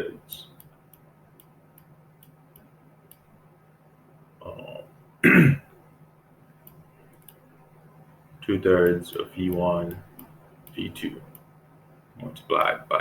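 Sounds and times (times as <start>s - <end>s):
man clearing his throat: 4.4s - 5.7s.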